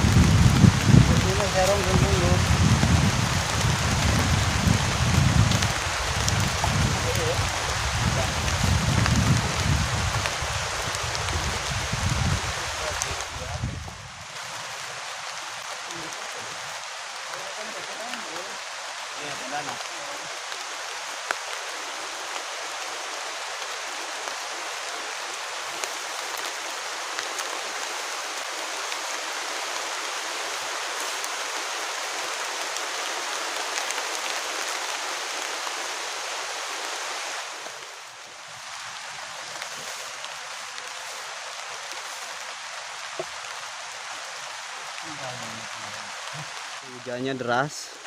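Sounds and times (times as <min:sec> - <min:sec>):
heavy rain pouring: 0:00.0 - 0:48.0.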